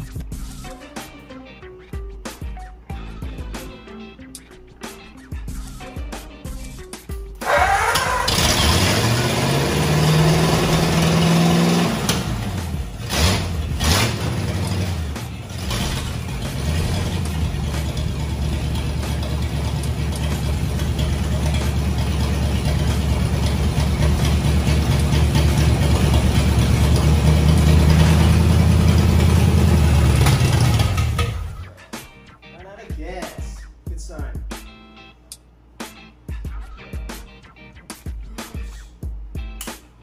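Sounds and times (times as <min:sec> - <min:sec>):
car engine running: 0:07.4 - 0:31.7.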